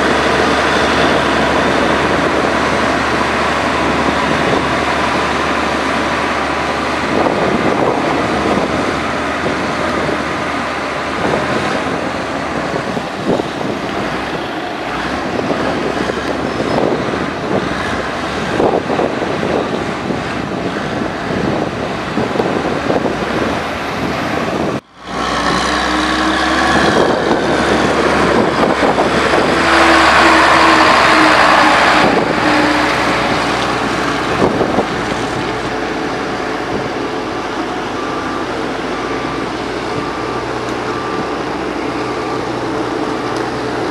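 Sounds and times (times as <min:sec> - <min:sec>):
heavy machinery diesel engines: 0:00.0 - 0:43.9
reversing alarm beeping: 0:35.6 - 0:43.8.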